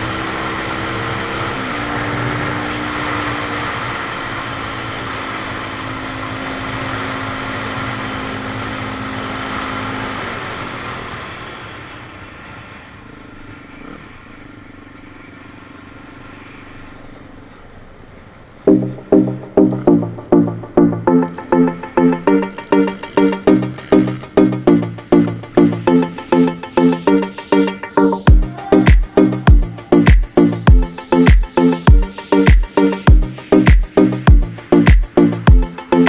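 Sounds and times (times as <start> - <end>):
vehicle engine running: 18.7 - 27.4, 28.2 - 36.0.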